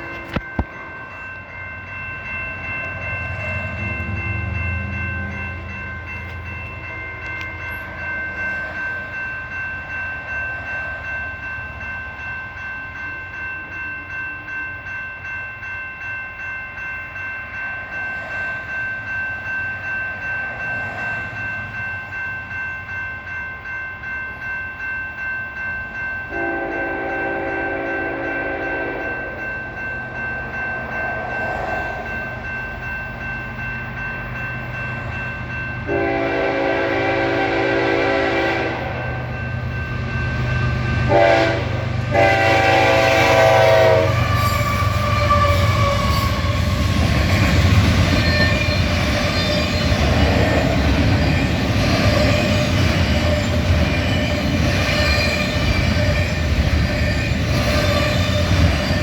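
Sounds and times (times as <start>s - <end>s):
train horn: 0.0s - 0.4s, 26.3s - 29.3s, 35.9s - 39.2s, 41.1s - 46.8s
diesel locomotive rumbling: 0.0s - 13.8s, 25.9s - 59.0s
bell ringing: 0.0s - 41.6s.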